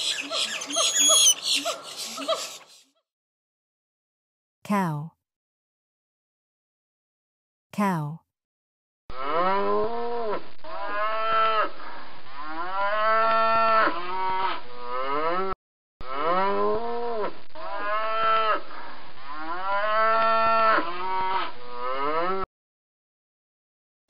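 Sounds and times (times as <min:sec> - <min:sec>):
cows mooing: 0:00.0 - 0:01.9.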